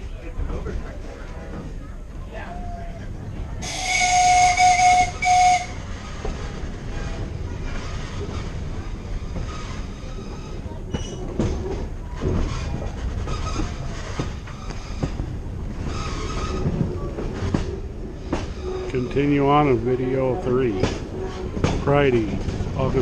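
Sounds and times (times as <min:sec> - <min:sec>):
train cars rumbling over track: 0:00.0 - 0:23.0
clacks over rail joints: 0:03.0 - 0:23.0
train wheels squealing: 0:09.2 - 0:11.2.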